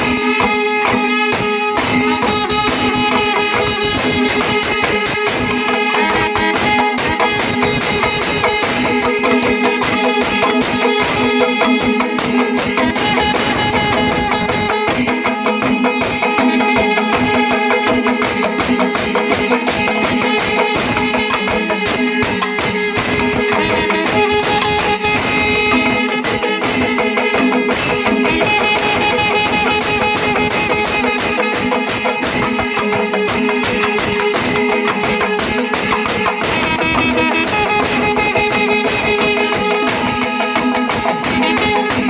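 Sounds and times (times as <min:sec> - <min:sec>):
fast dense drumming: 0:00.0 - 0:42.0.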